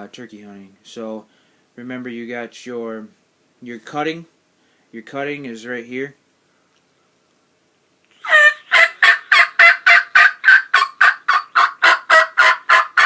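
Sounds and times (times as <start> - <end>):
turkey call yelps and clucks: 8.2 - 13.0.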